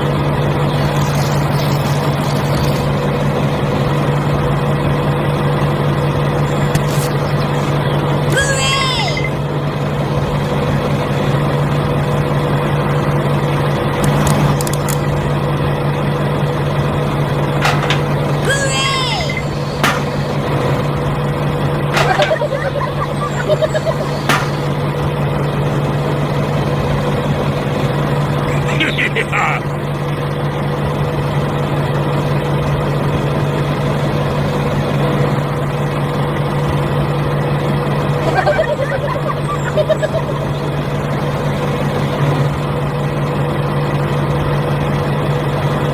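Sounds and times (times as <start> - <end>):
small motor humming: 0.5 - 3.3.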